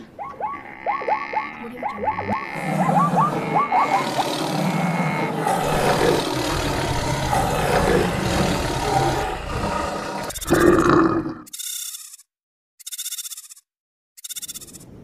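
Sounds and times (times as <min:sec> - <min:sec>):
animal roars and calls: 0:00.0 - 0:11.5
animal stampede rumble: 0:01.4 - 0:11.3.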